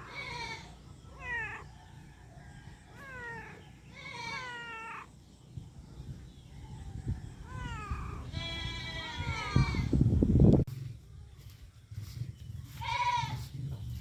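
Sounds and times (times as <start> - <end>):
cat meowing: 0.0 - 1.8, 2.9 - 5.2, 7.4 - 9.7.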